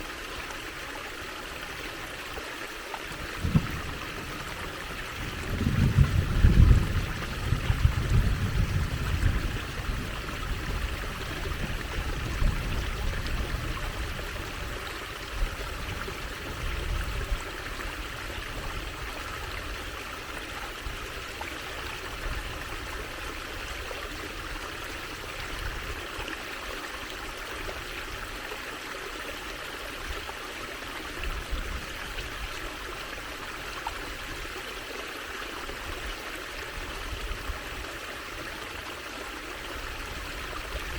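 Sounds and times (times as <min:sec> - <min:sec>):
trickling stream water: 0:00.0 - 0:40.9
low rumbling: 0:03.3 - 0:13.8.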